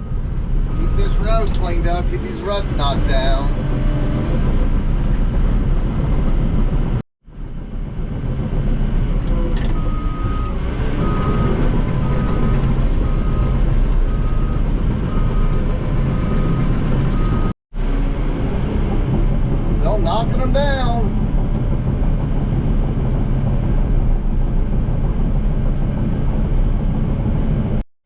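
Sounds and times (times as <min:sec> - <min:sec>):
diesel earthmoving equipment running: 0:00.0 - 0:27.8
backup alarm beeping: 0:09.8 - 0:17.5.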